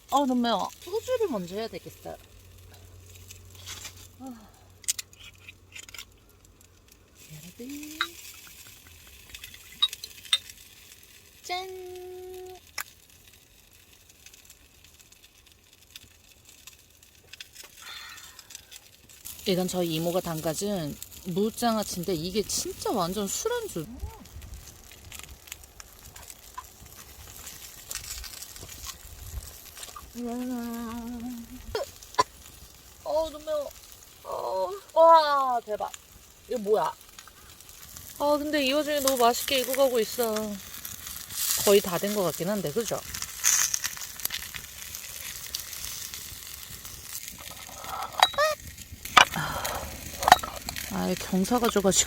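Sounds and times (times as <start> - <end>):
faint crackles and clicks: 0.0 - 52.0
meat sizzling on hot stone: 0.0 - 52.0
woman humming: 30.1 - 31.9.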